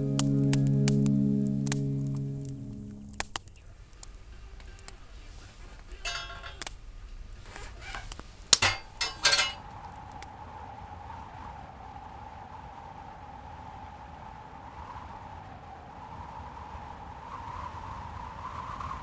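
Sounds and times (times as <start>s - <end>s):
background music: 0.0s - 3.4s
cookware and utensils clinking: 4.6s - 10.0s.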